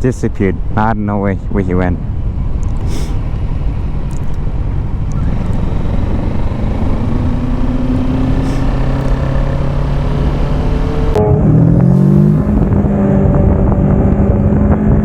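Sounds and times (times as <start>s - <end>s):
wind on microphone: 1.4s - 15.0s
motorcycle engine running: 2.0s - 15.0s.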